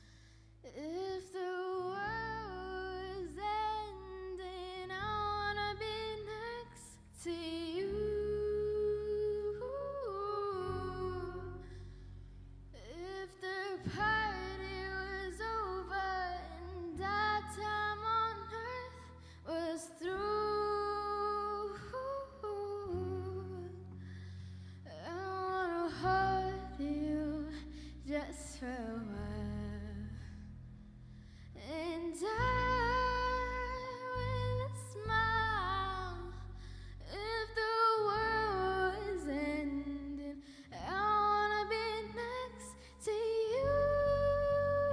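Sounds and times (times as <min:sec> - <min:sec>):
sustained low accompaniment: 0:00.8 - 0:44.9
woman singing with vibrato: 0:37.1 - 0:44.9.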